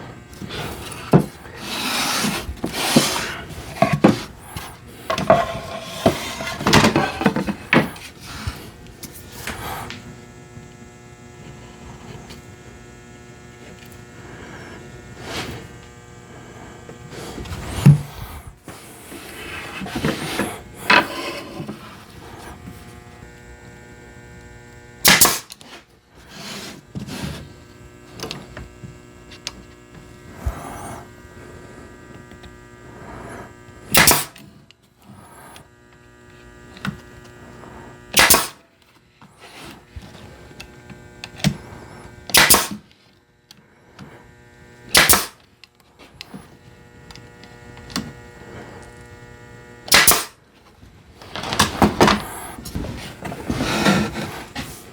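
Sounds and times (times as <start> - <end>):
steady electric hum: 0.0 - 54.9
wooden pieces rubbing together: 0.4 - 9.8.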